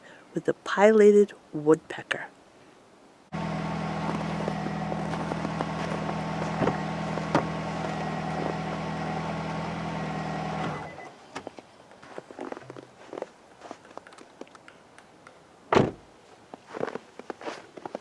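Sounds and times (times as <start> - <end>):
vehicle engine idling: 3.4 - 11.1.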